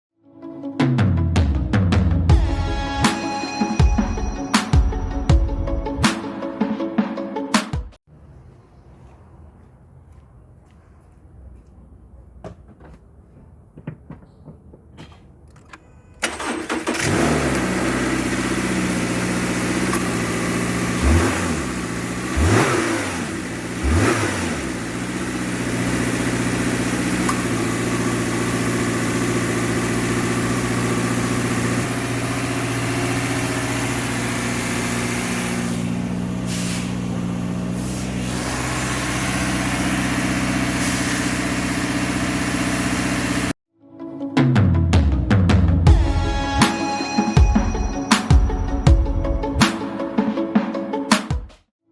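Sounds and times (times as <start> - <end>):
car engine starting and idling: 15.0 - 43.6.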